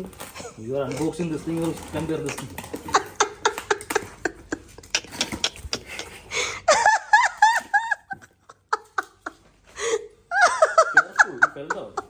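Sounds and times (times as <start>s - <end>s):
person laughing high-pitched: 2.8s - 12.0s.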